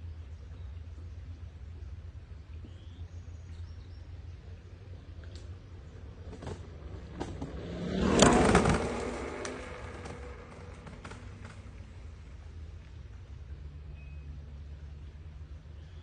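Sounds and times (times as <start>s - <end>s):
vehicle passing close by: 6.0s - 12.6s.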